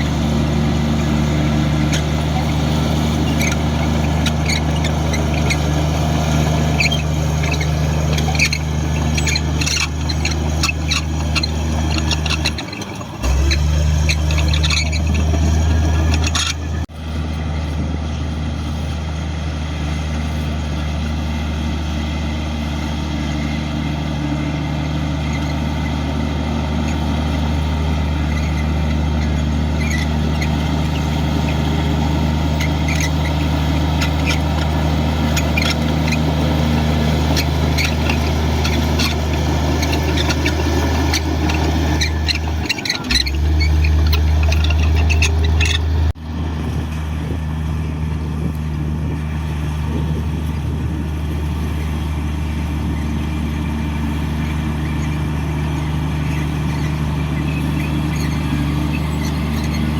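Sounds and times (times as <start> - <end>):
bulldozer diesel engine droning: 0.0 - 59.9
high squeaks and clicks: 1.0 - 16.9, 28.2 - 46.2, 54.5 - 59.9.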